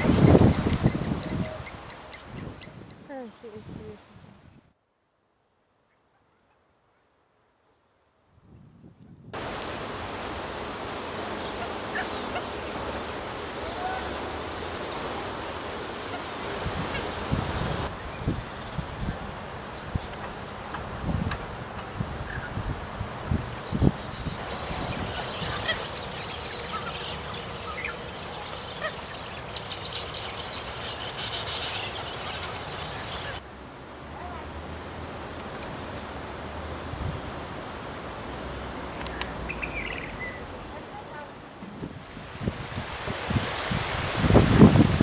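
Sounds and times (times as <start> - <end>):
outdoor background noise: 0.0 - 45.0
small bird chirping: 9.4 - 15.2, 23.8 - 33.4.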